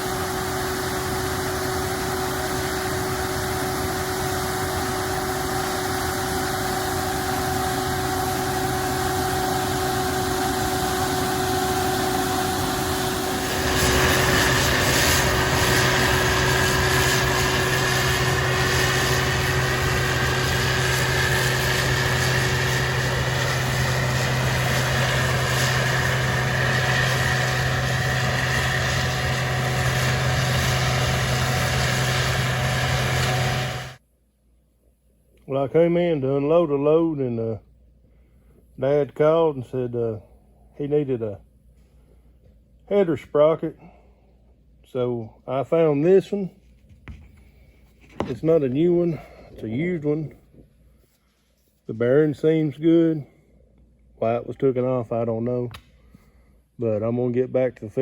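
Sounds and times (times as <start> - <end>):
farm machinery engine running: 0.0 - 34.0
rising machine whine: 0.0 - 34.0.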